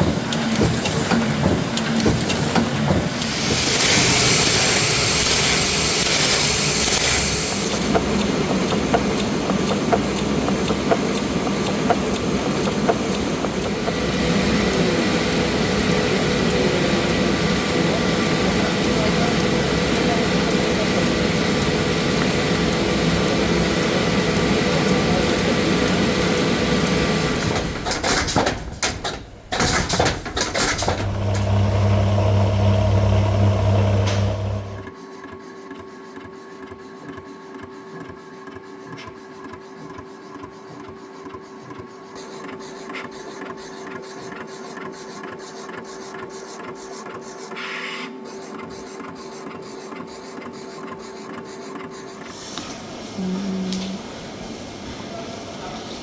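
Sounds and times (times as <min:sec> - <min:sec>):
machine rapid ticking: 0:00.0 - 0:31.5
loud machine noise: 0:00.0 - 0:34.9
deep loud hum: 0:29.6 - 0:34.9.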